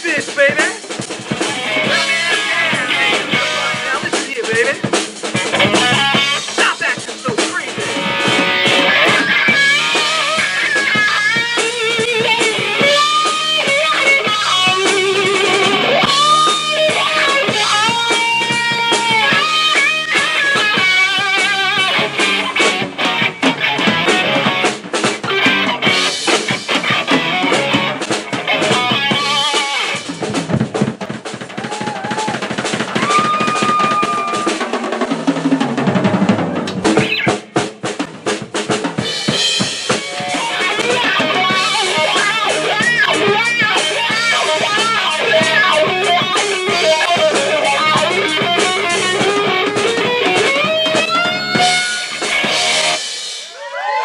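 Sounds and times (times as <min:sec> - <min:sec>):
drum kit: 0:00.0 - 0:54.0
electric guitar melody: 0:00.8 - 0:30.2, 0:39.0 - 0:53.1
heavy drum hits: 0:20.8 - 0:53.0.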